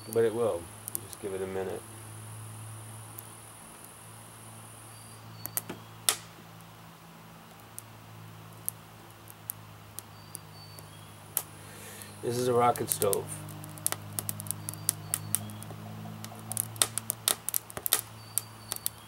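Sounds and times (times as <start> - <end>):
fire pops and snaps: 0.0 - 1.7, 3.0 - 4.0, 5.3 - 6.7, 8.5 - 19.0
wood fire crackling: 0.0 - 19.0.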